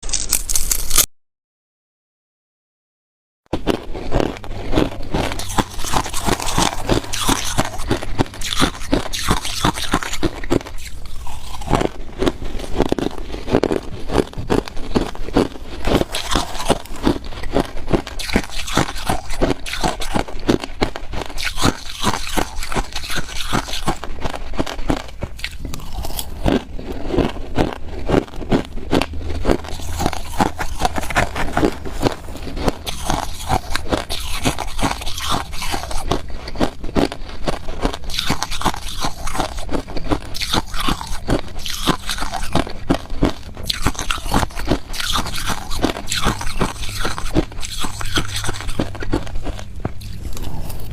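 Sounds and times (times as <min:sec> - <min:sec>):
person chewing ice: 0:00.0 - 0:01.1, 0:03.6 - 0:50.9.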